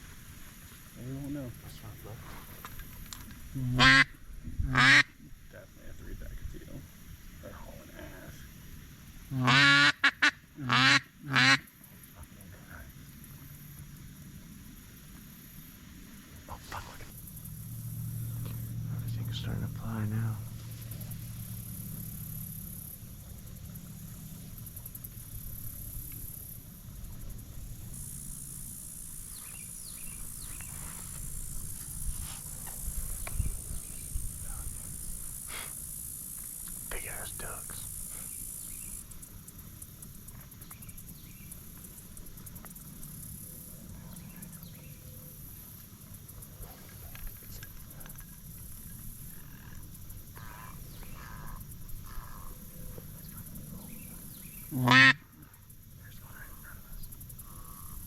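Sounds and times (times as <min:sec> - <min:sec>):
crickets buzzing: 0:00.0 - 0:58.0
high insect drone: 0:00.0 - 0:58.0
low wind rumble: 0:01.4 - 0:09.4, 0:14.1 - 0:36.3
duck quacks: 0:03.7 - 0:04.1, 0:04.7 - 0:05.2, 0:09.3 - 0:11.7, 0:54.8 - 0:55.4.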